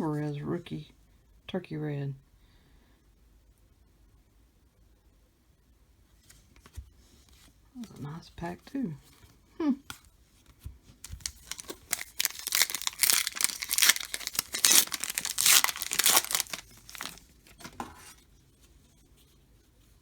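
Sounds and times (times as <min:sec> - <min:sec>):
plastic wrapper tearing and crinkling: 0:11.0 - 0:18.2.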